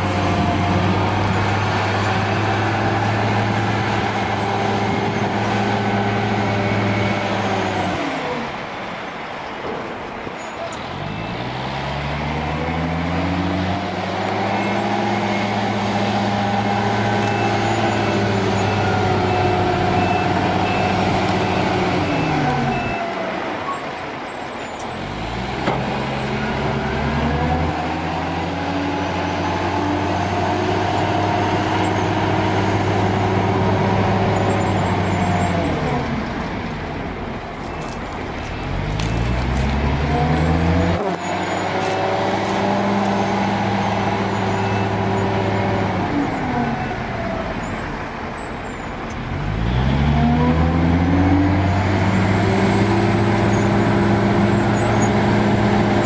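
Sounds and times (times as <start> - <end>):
heavy machine engine revving: 0.0 - 8.0, 10.8 - 23.1, 25.0 - 37.1, 37.8 - 48.0, 49.1 - 56.0
faint repeated beep: 20.0 - 23.1.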